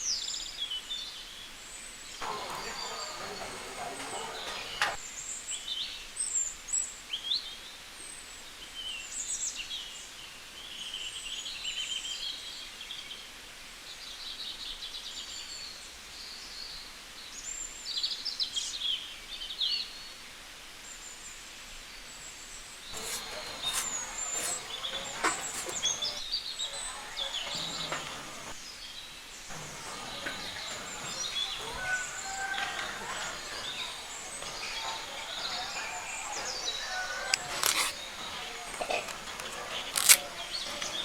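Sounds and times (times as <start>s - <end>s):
wild birds chirping: 2.2s - 5.2s, 22.9s - 41.0s.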